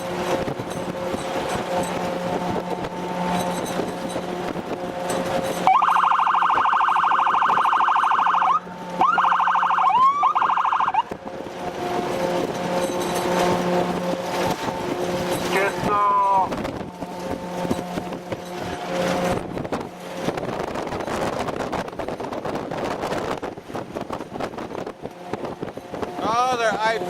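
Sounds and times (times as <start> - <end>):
vehicle engine drone: 0.0 - 27.0
electronic siren warbling: 5.6 - 11.2.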